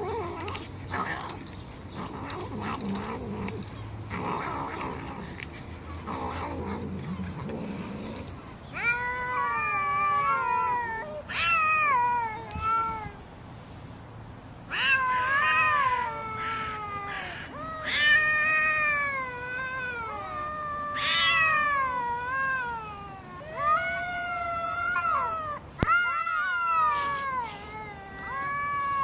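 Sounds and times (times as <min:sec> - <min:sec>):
cat meowing: 0:08.7 - 0:13.2, 0:14.7 - 0:29.0.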